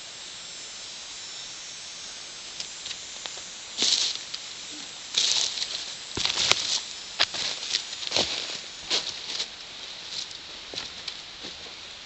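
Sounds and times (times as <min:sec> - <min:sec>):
steady hiss: 0:00.0 - 0:12.0
footsteps crunching dry leaves: 0:02.6 - 0:11.9.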